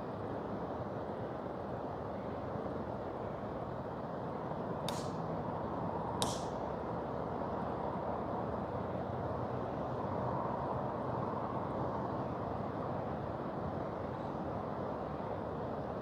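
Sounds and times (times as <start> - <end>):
sharp snap: 4.9 - 5.3, 6.2 - 6.6.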